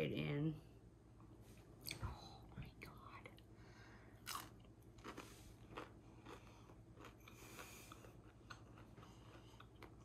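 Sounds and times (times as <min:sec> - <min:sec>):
low steady hum: 0:00.0 - 0:10.0
chewing fried fish: 0:04.2 - 0:10.0.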